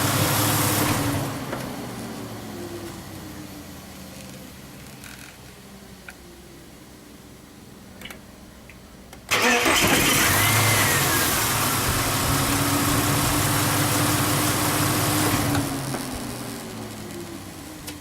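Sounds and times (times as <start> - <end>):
car engine starting and idling: 0.0 - 18.0
loud mechanical noise: 9.3 - 17.2.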